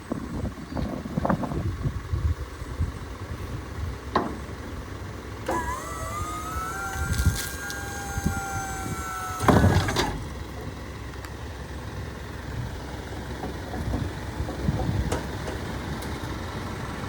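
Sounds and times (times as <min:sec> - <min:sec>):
garbage truck engine rumble: 0:00.0 - 0:17.0
mechanical whine: 0:05.4 - 0:10.6.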